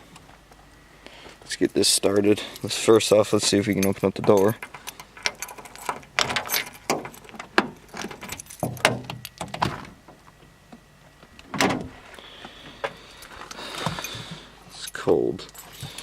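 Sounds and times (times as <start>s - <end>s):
van door unlocking and opening: 3.3s - 10.2s, 11.4s - 12.0s
keys jangling: 3.4s - 9.4s, 13.2s - 16.0s.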